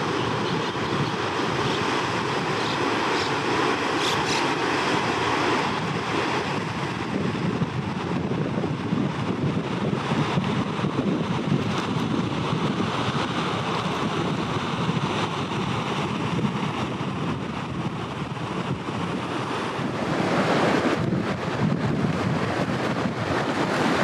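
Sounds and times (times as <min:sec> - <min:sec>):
river rushing: 0:00.0 - 0:24.0
wind buffeting microphone: 0:00.0 - 0:24.0.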